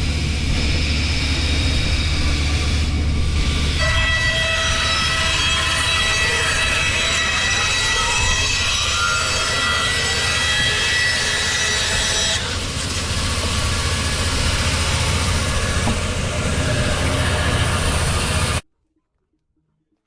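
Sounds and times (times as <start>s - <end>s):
circular saw whining: 0.1s - 18.6s
mill machinery rumble: 8.2s - 18.6s.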